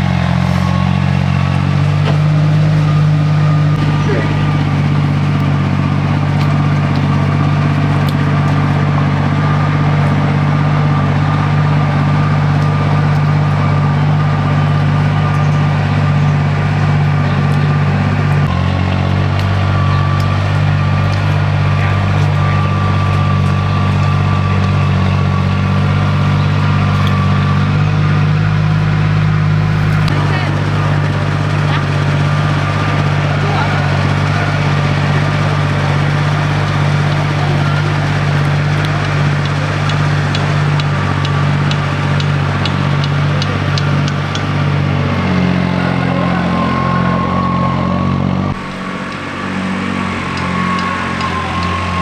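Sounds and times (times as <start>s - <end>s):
vehicle engine running: 0.0s - 52.0s.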